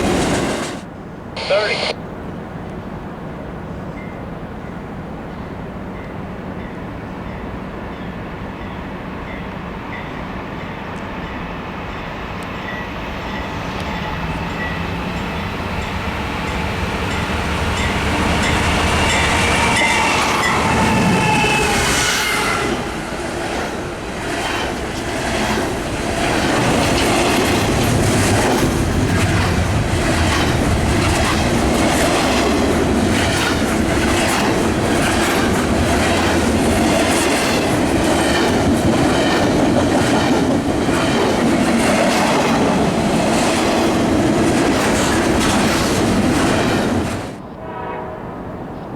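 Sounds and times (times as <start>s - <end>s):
diesel locomotive engine: 0.0s - 47.8s
train wheels clicking over rail joints: 24.4s - 46.9s.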